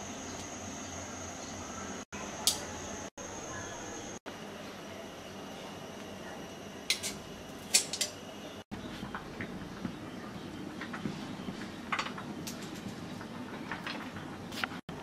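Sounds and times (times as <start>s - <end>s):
metal utensils clinking on dishes: 6.9s - 8.2s.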